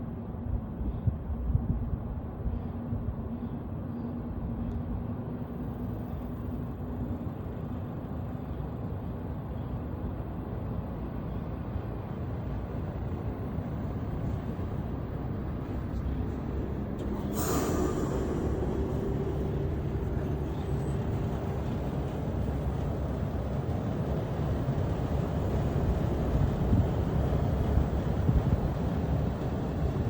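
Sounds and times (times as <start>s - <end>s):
sudden hiss: 17.0s - 20.9s.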